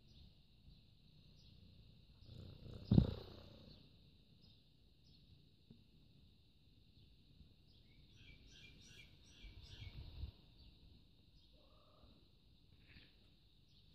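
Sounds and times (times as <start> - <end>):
low rumble on microphone: 2.2 - 3.8.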